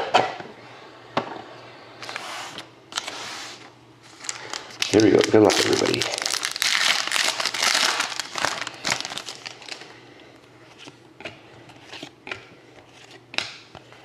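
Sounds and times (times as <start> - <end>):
plastic wrapping crinkling: 4.0 - 9.9.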